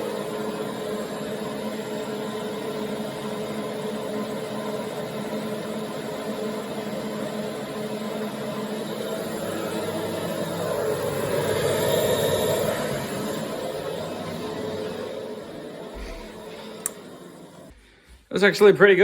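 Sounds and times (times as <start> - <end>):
vacuum cleaner running: 0.0 - 18.2.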